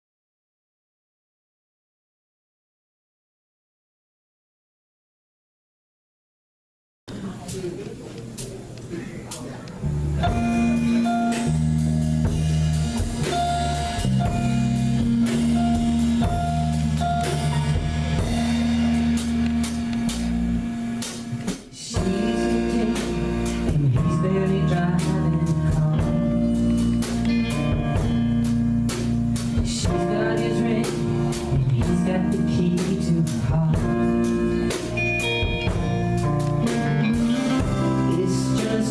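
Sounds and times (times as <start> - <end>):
drum kit: 7.1 - 38.9
guitar: 8.1 - 38.9
live country band playing: 9.8 - 38.9.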